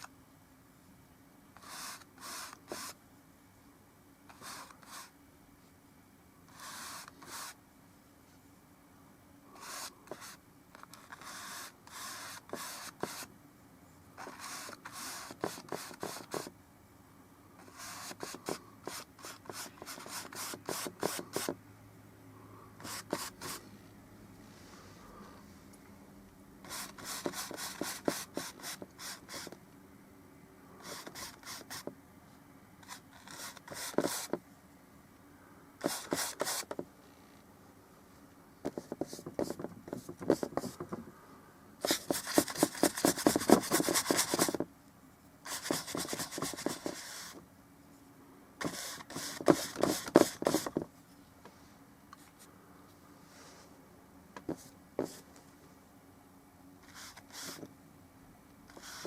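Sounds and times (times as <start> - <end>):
paint brush scrubbing strokes: 1.6 - 3.0, 4.3 - 5.1, 6.5 - 7.6, 9.5 - 10.4, 14.2 - 16.5, 17.6 - 21.6, 22.8 - 23.7, 26.6 - 29.5, 30.8 - 31.9, 32.8 - 34.4, 48.6 - 50.7, 56.8 - 57.6, 58.7 - 59.0.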